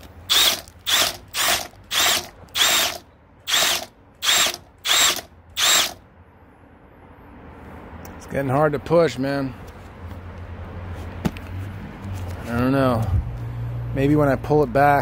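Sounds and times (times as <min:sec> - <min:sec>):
power drill whining in bursts: 0:00.3 - 0:06.0.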